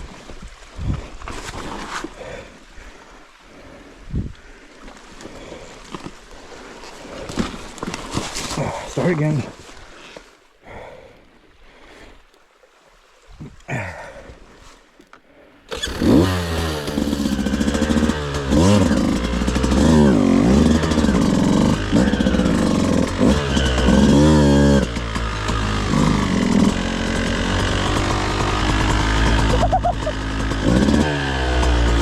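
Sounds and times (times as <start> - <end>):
dirt bike engine revving: 15.7 - 32.0.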